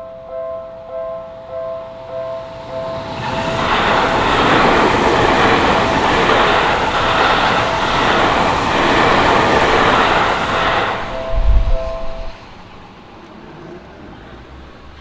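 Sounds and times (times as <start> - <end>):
crossing warning bells: 0.0 - 15.0
train wheels rushing on rail: 1.9 - 15.0.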